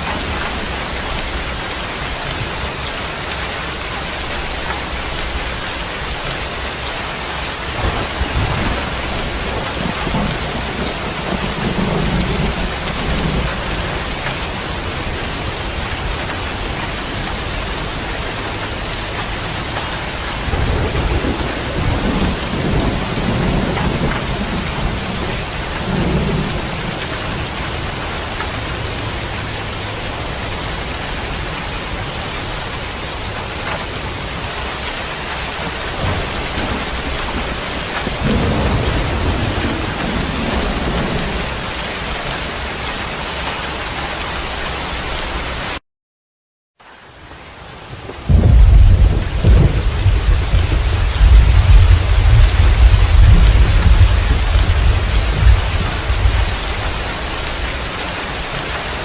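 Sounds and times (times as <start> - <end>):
steady rain falling: 0.0 - 45.8, 46.8 - 59.0
low rolls of thunder: 7.6 - 16.6, 20.4 - 28.6, 35.6 - 42.3, 48.0 - 57.7.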